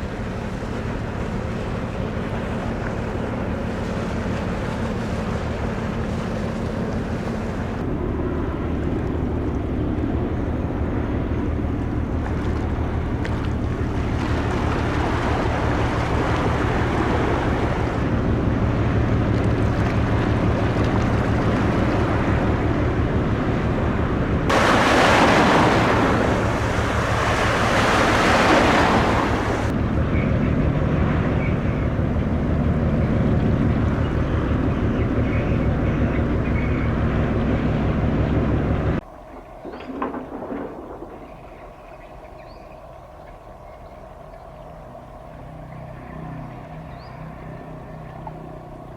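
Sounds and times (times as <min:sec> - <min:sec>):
ship engine throb: 0:00.0 - 0:39.0
water and wind noise: 0:00.0 - 0:48.9.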